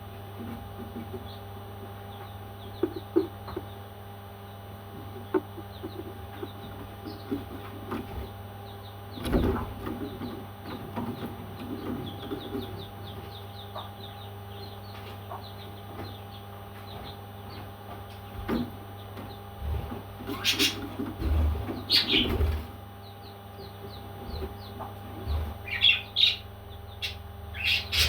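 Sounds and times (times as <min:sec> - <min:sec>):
steady low hum: 0:00.0 - 0:28.0
parrots chirping: 0:25.6 - 0:28.0.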